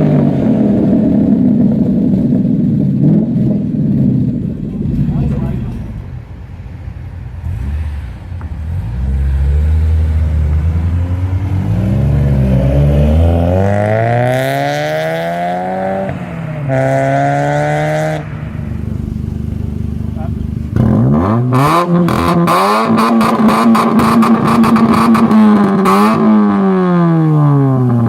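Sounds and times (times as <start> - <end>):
car engine accelerating hard: 7.3 - 28.0.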